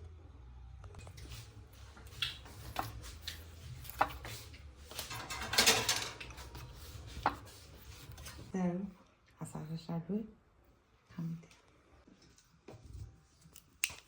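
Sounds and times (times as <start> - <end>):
dishes and utensils clinking: 2.1 - 7.4.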